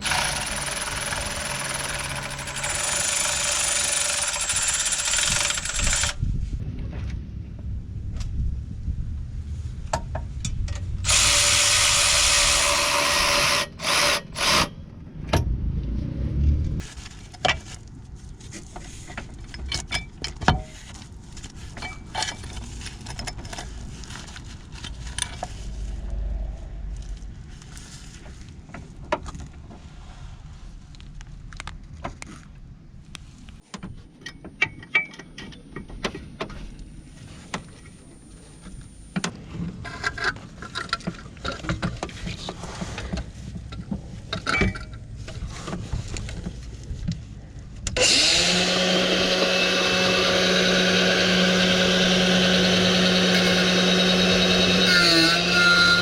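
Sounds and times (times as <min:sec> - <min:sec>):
power tool running: 0:00.0 - 0:06.2, 0:11.0 - 0:14.7, 0:48.0 - 0:56.0.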